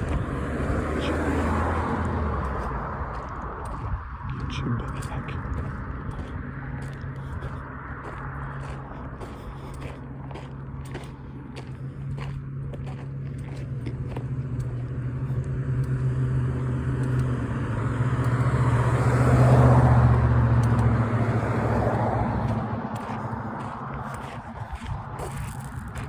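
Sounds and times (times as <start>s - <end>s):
vehicle passing on road: 0.0s - 26.0s.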